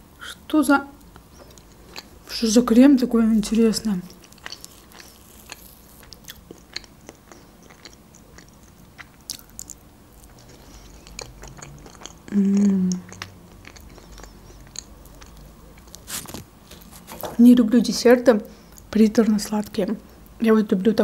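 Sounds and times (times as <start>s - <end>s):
wet chewing sounds: 1.0s - 2.4s, 3.9s - 17.2s
person humming mmm: 12.3s - 13.2s.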